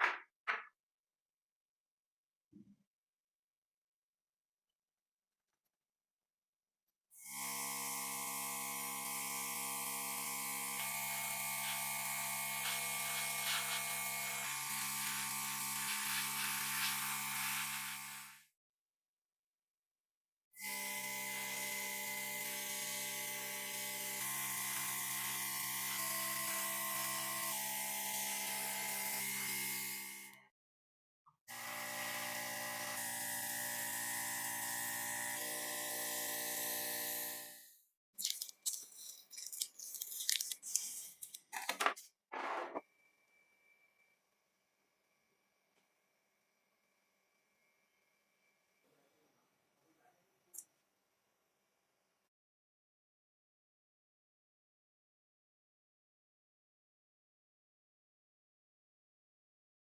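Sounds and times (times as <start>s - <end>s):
power tool motor buzzing: 7.2s - 18.4s, 20.6s - 30.4s, 31.5s - 37.8s.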